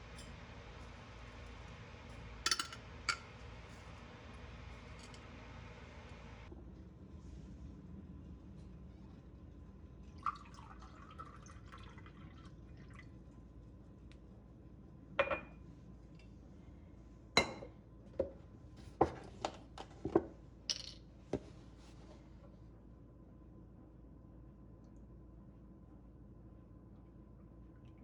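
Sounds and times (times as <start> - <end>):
liquid pouring: 10.0 - 13.2
dishes clinking: 15.2 - 15.6, 17.4 - 17.7.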